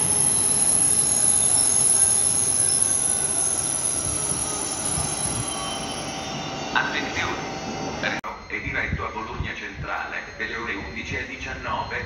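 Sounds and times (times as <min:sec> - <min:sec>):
high brake squeal: 0:00.0 - 0:08.0
train rolling and braking: 0:00.0 - 0:12.0.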